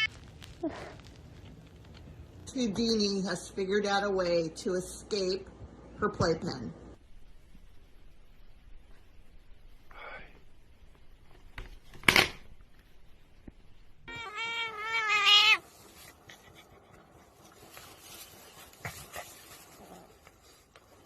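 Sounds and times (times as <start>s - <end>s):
cat meowing: 14.0s - 15.6s.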